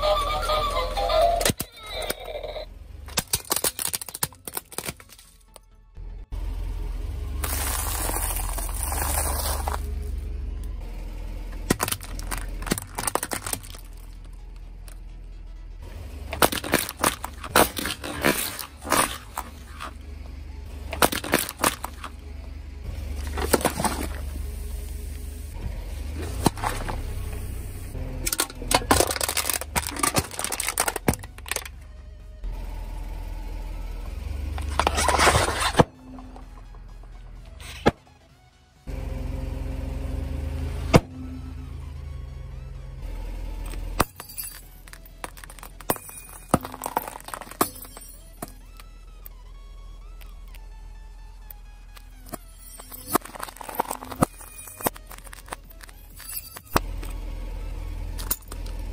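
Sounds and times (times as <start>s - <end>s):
car engine humming: 0.0s - 58.9s
toy cracking under car tyre: 3.1s - 5.6s, 7.4s - 9.9s, 11.5s - 14.6s, 16.3s - 20.0s, 20.9s - 22.2s, 28.2s - 31.8s, 43.7s - 49.4s, 51.4s - 57.2s.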